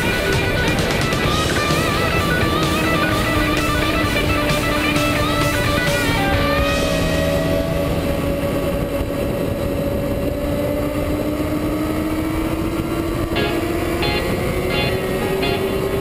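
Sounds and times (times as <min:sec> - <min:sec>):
music: 0:00.0 - 0:08.7, 0:13.2 - 0:16.0
motorcycle engine running hard: 0:00.0 - 0:16.0
wind rush over microphone: 0:00.0 - 0:16.0.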